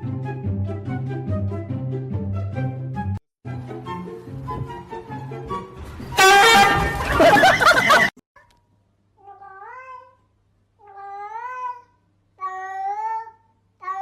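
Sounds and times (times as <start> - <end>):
cat meowing: 9.2 - 10.2, 10.8 - 14.0.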